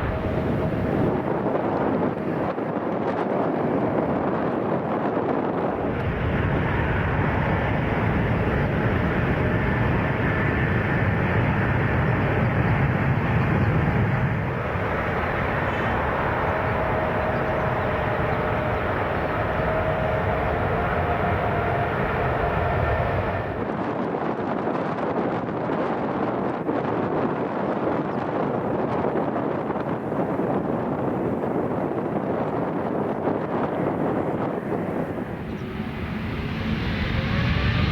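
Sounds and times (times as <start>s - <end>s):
jet engine roar: 0.0s - 2.7s, 3.6s - 24.5s, 33.3s - 37.9s
faint whining tones: 6.0s - 23.7s.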